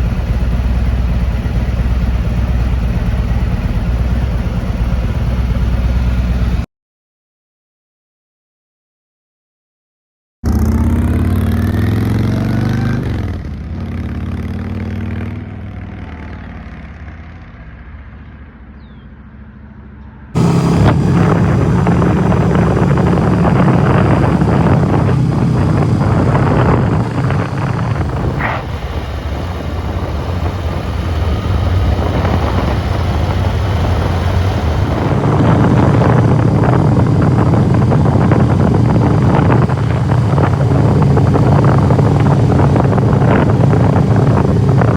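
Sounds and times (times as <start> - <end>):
motorcycle engine running: 0.0 - 6.6, 10.5 - 15.8, 20.4 - 44.9
wind noise on microphone: 20.4 - 44.9.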